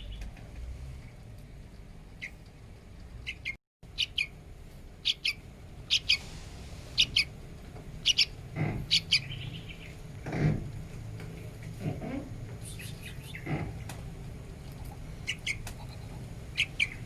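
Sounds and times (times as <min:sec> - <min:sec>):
young bulbul chirping: 0:02.2 - 0:02.4, 0:03.2 - 0:04.4, 0:05.0 - 0:06.2, 0:07.0 - 0:07.3, 0:08.0 - 0:10.0, 0:12.6 - 0:13.9, 0:14.7 - 0:17.0.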